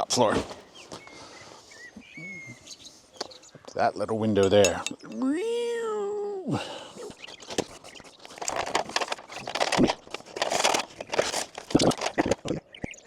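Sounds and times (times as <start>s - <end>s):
crackling rustles: 7.0s - 13.0s.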